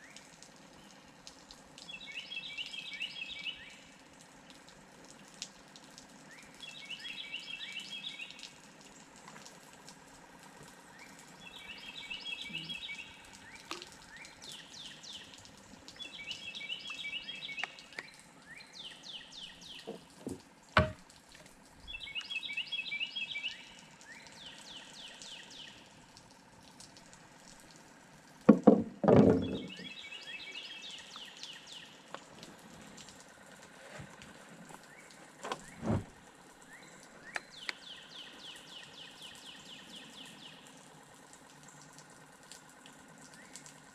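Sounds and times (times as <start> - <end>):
songbird singing: 1.8 - 3.9, 6.3 - 8.5, 10.9 - 21.0, 21.8 - 25.9, 28.5 - 32.1, 34.8 - 40.8
loud thumps: 20.3 - 21.0
sharp knock: 20.8 - 21.0.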